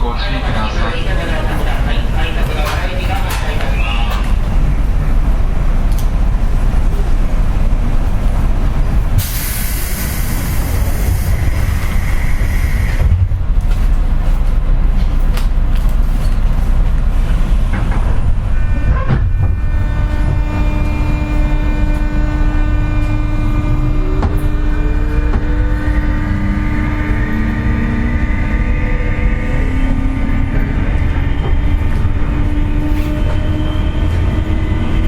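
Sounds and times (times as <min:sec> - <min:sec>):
train low rumble: 0:00.0 - 0:35.0
compressed air hiss: 0:09.2 - 0:13.0
whining traction motor tones: 0:17.0 - 0:35.0.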